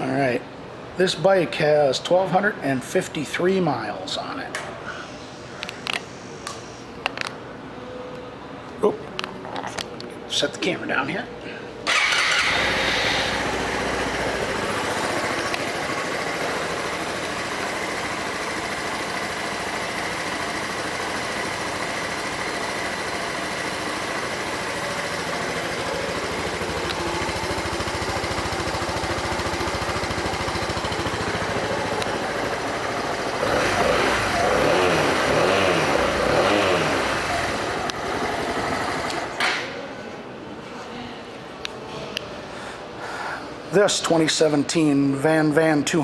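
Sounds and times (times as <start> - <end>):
motorcycle engine idling and revving: 11.9 - 39.4.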